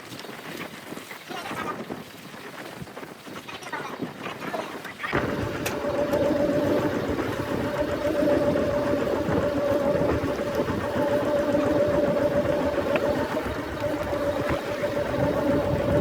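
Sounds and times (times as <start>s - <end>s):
boat engine running: 5.1s - 16.0s.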